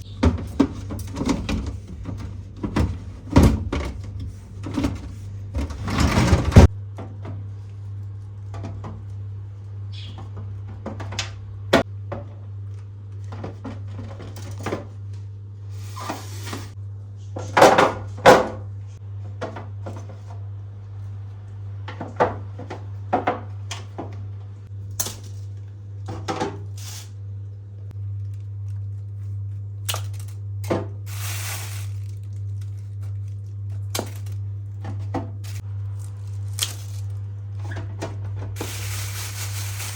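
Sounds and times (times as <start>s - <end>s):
steady low hum: 0.0s - 39.9s
rustling: 38.6s - 39.9s.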